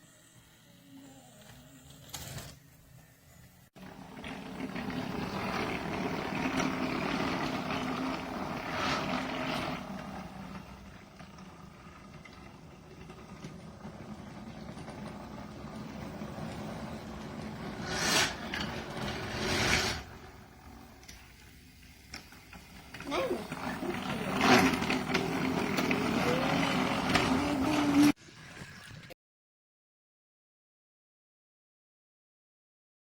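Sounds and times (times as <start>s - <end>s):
toy train motor whir: 0.0s - 29.1s
toy train wheels rattling: 3.8s - 20.1s, 20.7s - 28.2s.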